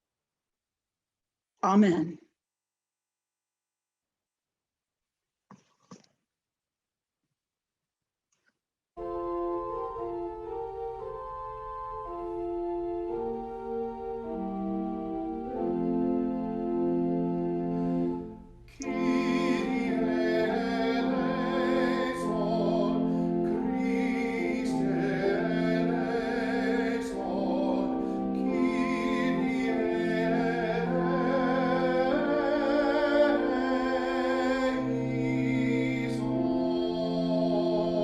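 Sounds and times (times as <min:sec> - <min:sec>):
pipe organ chords: 0:09.0 - 0:38.0
person singing with vibrato: 0:18.8 - 0:38.0.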